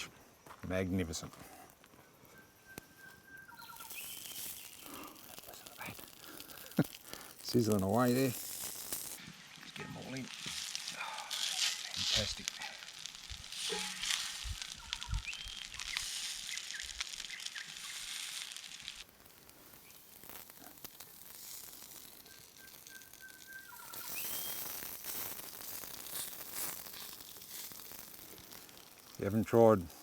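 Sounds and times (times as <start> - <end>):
bird whistling: 2.3 - 4.8, 14.8 - 18.0, 22.2 - 24.6
food sizzling in a frying pan: 3.3 - 30.0.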